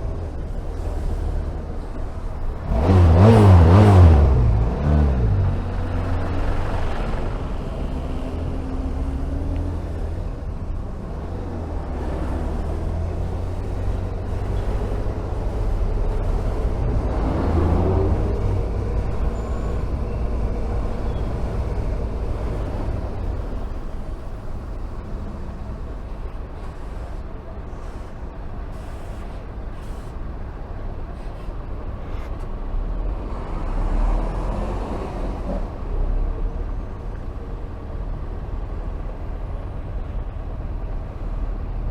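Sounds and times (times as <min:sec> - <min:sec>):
motorcycle engine accelerating: 0:00.4 - 0:10.4, 0:11.2 - 0:26.3.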